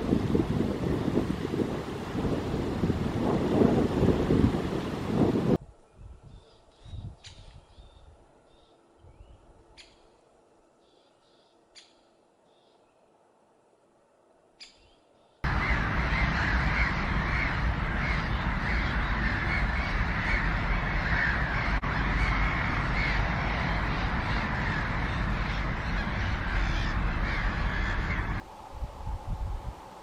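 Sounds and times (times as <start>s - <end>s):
flock of birds calling: 15.4s - 28.4s.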